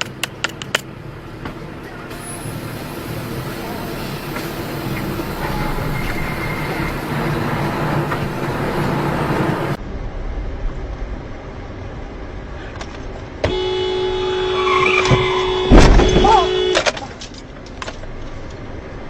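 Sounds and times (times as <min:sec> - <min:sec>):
road noise: 0:00.0 - 0:19.0
car horn long blast: 0:13.4 - 0:17.0
loud collision bang: 0:15.1 - 0:16.8.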